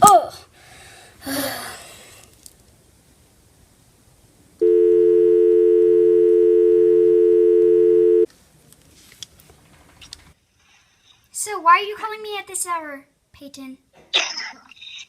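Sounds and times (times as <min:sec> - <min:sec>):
telephone dial tone: 0:04.6 - 0:08.3.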